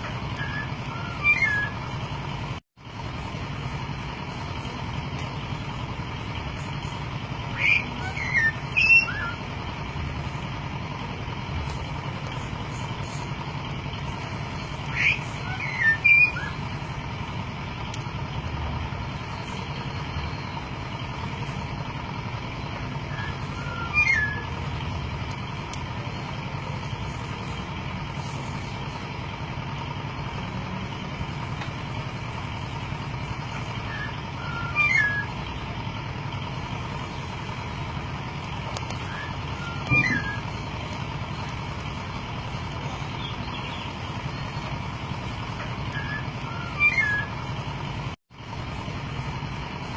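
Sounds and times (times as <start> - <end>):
steady background hum: 0.0 - 49.9
bird whistled calls: 0.3 - 2.0, 7.5 - 9.4, 14.8 - 16.7, 22.6 - 24.6, 33.6 - 35.4, 39.0 - 40.6, 45.8 - 47.4.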